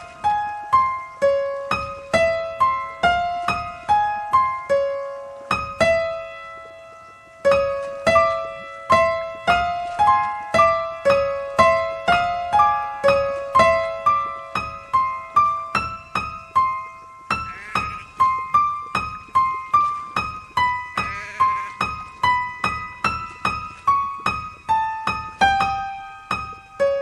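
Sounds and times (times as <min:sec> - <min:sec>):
eerie high piano melody: 0:00.0 - 0:27.0.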